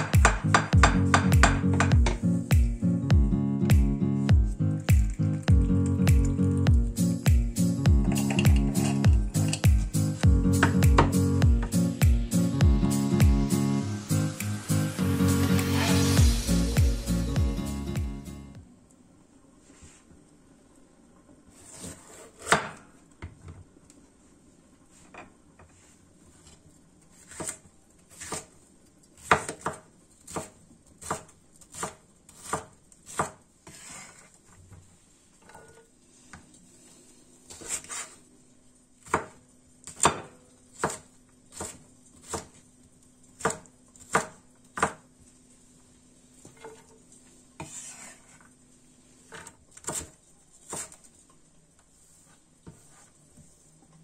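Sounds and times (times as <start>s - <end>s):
knife chopping on cutting board: 0.0s - 2.8s, 21.6s - 22.8s, 27.2s - 28.5s, 29.2s - 34.1s, 39.0s - 42.6s, 43.4s - 45.0s, 49.8s - 51.0s.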